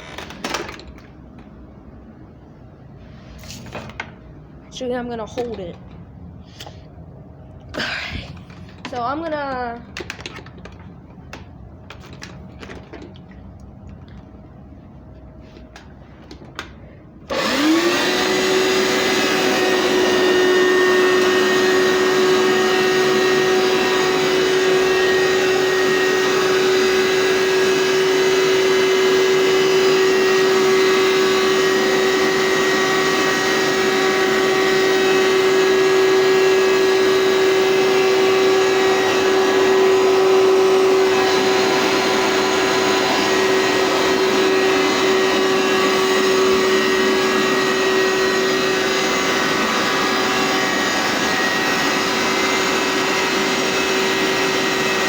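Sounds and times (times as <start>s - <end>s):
carpet cleaner motor whining: 15.8s - 55.0s.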